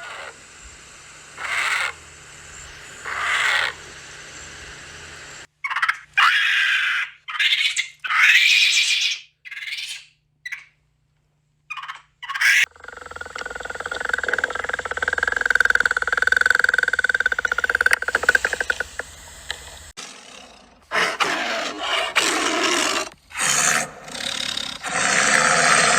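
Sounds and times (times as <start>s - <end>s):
harsh animal calls: 0.0s - 0.4s, 1.4s - 2.0s, 3.0s - 3.9s, 11.7s - 19.0s, 20.0s - 25.9s.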